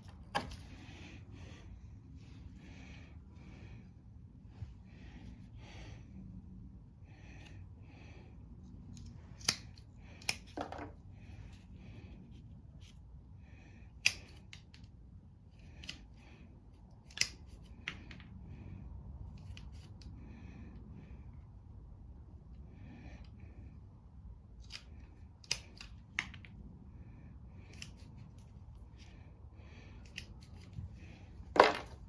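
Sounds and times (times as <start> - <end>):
sharp snipping clicks: 9.0 - 10.5, 14.0 - 14.9, 17.1 - 17.5, 24.6 - 26.4.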